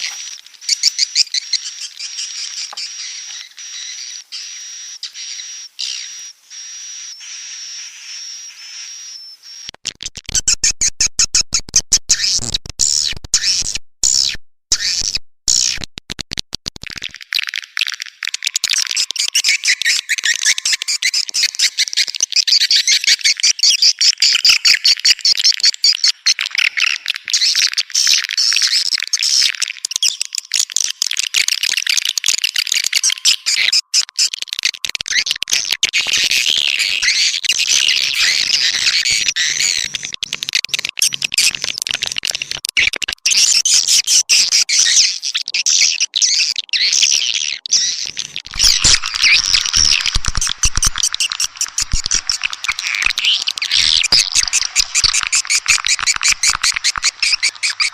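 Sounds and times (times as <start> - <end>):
swiftlets twittering: 18.1 - 22.8, 48.4 - 57.9.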